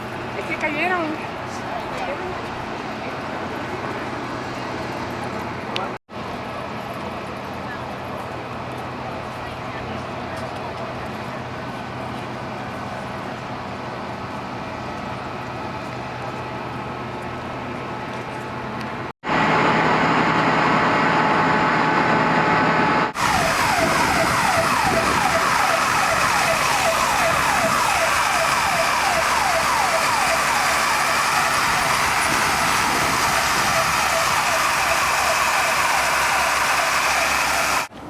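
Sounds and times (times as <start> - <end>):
steady rush of noise: 19.3 - 37.9
siren in fast yelp mode: 23.0 - 37.9.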